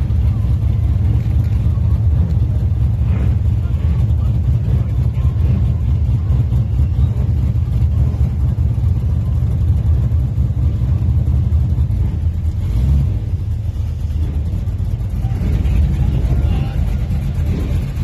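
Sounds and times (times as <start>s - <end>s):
car engine rumbling at low revs: 0.0s - 18.0s.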